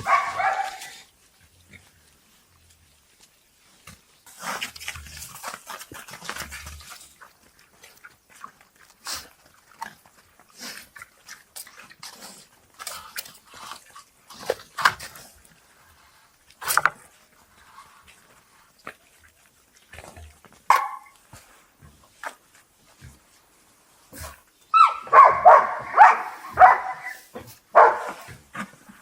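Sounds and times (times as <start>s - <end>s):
animal squeals and yelps: 24.7s - 25.4s.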